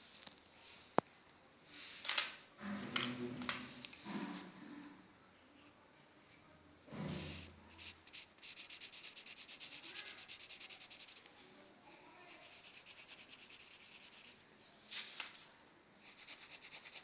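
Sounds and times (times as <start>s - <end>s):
pencil scratching on paper: 6.9s - 14.4s, 16.0s - 17.0s.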